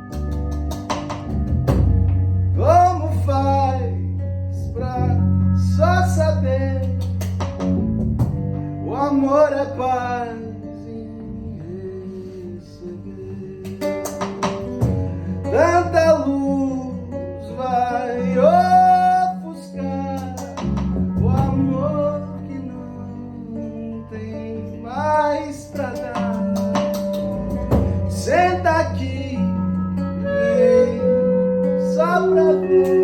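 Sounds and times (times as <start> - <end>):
plucked acoustic guitar: 0.0 - 33.0
person singing: 15.4 - 33.0.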